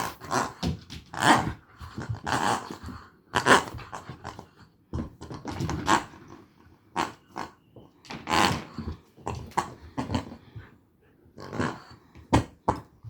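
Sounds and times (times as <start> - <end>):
puppy growling: 8.3 - 12.5.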